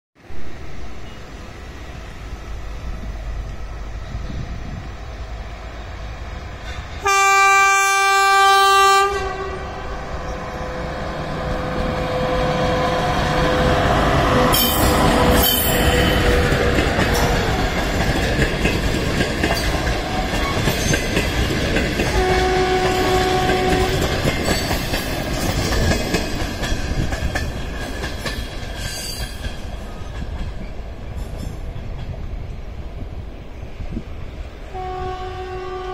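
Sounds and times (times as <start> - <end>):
train rumbling past: 0.2 - 35.9
locomotive horn blast: 7.0 - 10.8, 22.1 - 24.1, 34.7 - 35.9
wheels clacking over rail joints: 11.3 - 32.2.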